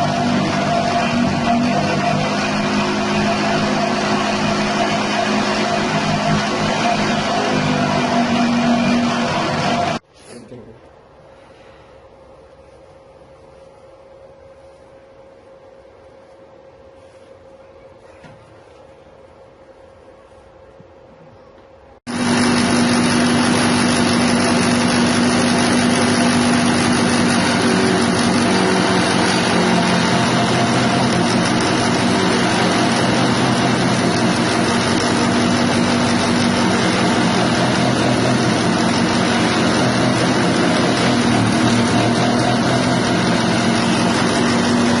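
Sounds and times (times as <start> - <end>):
grass chopper engine running: 0.0 - 10.0, 22.1 - 45.0.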